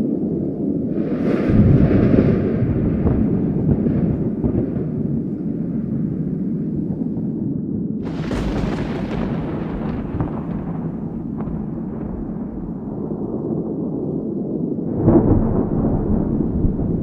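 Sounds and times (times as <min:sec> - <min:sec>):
thunder crack and rumble: 0:00.0 - 0:17.0.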